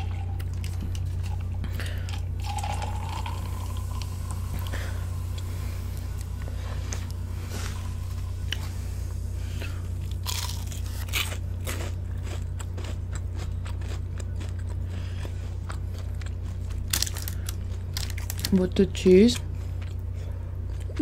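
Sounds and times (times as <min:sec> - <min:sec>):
steady low hum: 0:00.0 - 0:21.0
chewing crispy fried chicken: 0:09.4 - 0:21.0.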